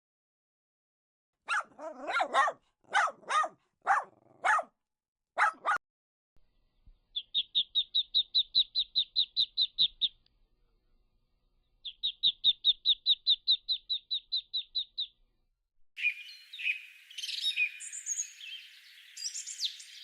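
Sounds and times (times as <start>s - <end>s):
dog barking: 1.4s - 4.8s, 5.4s - 5.8s.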